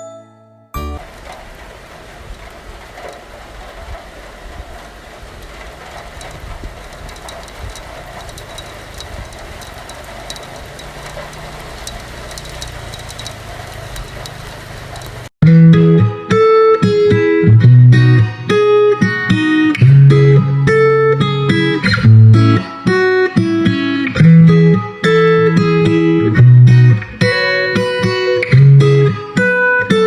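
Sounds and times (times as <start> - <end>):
faint clicks and rattles: 5.4 - 15.3.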